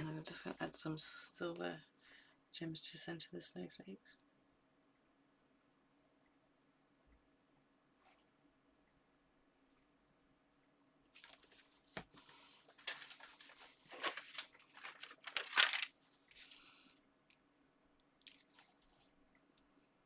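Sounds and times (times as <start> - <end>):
plastic packaging crinkling: 12.7 - 16.6, 18.0 - 18.8.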